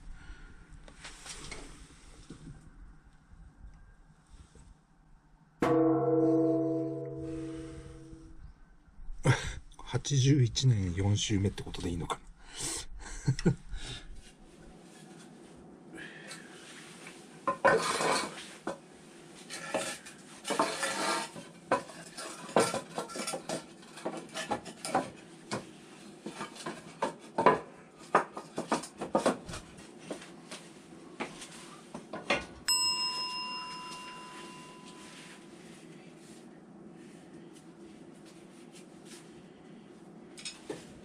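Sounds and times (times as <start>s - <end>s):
struck metal ringing: 5.6s - 8.5s
scraping rustles: 16.7s - 18.7s, 19.3s - 27.3s
metal tools clattering and clinking: 19.5s - 25.1s.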